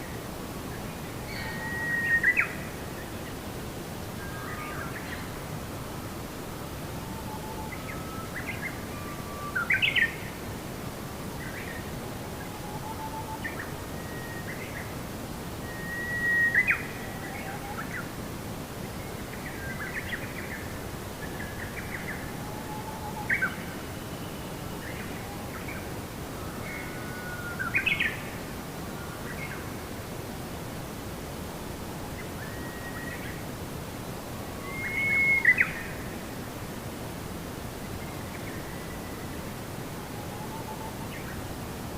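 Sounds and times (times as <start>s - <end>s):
steady background hiss: 0.0s - 41.9s
songbirds chirping and whistling: 34.6s - 36.0s.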